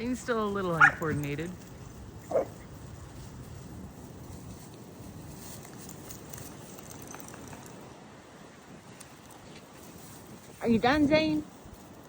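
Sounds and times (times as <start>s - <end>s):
dogs scuffling: 0.0s - 8.0s, 8.6s - 12.0s
pattering of paws: 0.4s - 8.0s.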